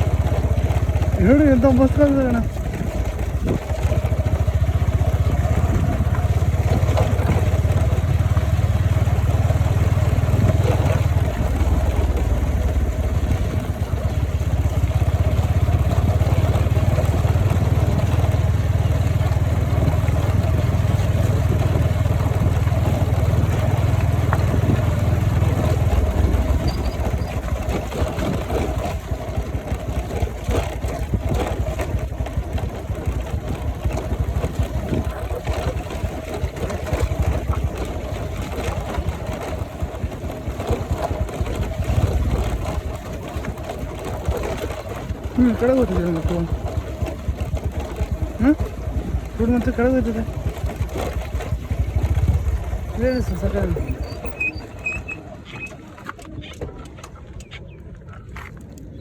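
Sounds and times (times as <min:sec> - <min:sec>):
wind rumble on microphone: 0:00.0 - 0:32.2
vehicle engine running: 0:00.0 - 0:59.0.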